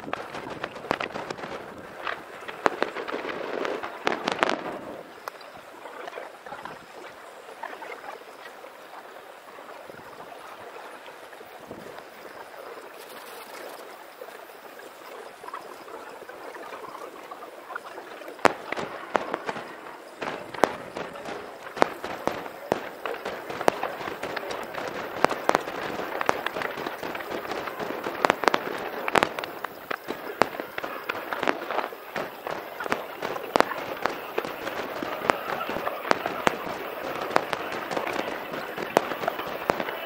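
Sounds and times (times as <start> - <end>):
fireworks bangs and crackles: 0.0 - 5.8, 18.1 - 40.0.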